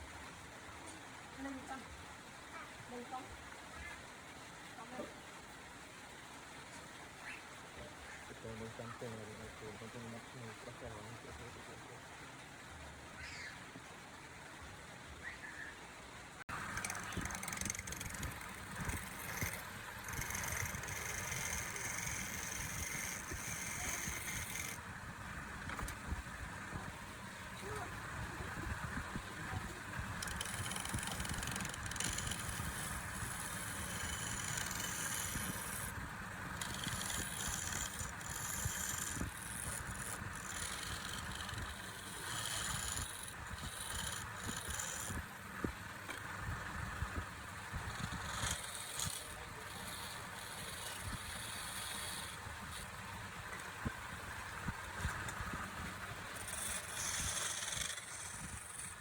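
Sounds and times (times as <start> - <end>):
wood lathe running: 16.5 - 53.7, 54.9 - 59.0
tool scraping spinning wood: 16.5 - 59.0.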